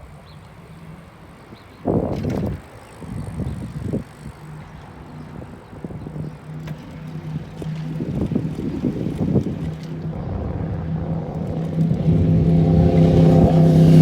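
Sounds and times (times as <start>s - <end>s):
steady low hum: 0.0s - 14.0s
loud low rumble: 8.2s - 14.0s.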